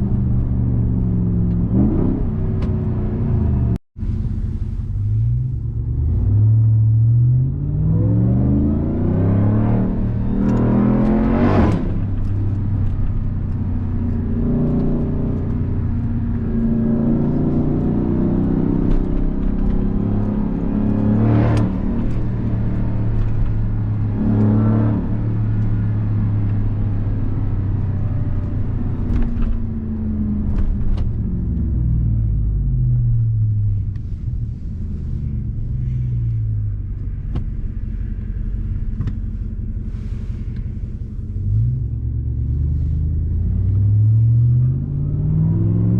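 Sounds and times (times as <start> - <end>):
car engine accelerating: 0.0 - 45.9.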